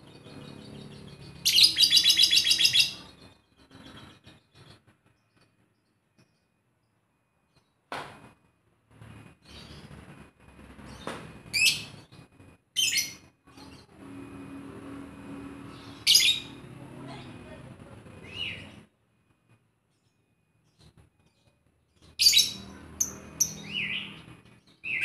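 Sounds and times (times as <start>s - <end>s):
lovebird chirping: 0.0s - 6.5s, 15.6s - 18.8s.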